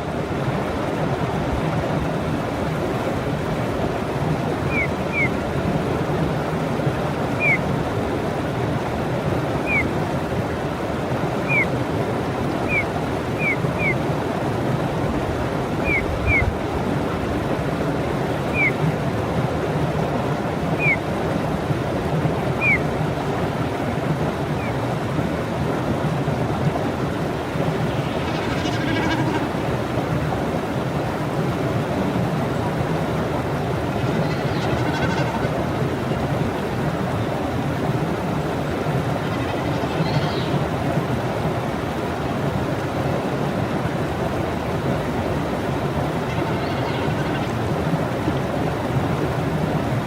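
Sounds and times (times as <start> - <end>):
rushing wind or water: 0.0 - 50.0
songbird chirping: 4.7 - 5.3, 7.4 - 7.6, 9.6 - 9.9, 11.4 - 11.7, 12.6 - 12.8, 13.4 - 14.0, 20.8 - 21.0, 22.6 - 22.8.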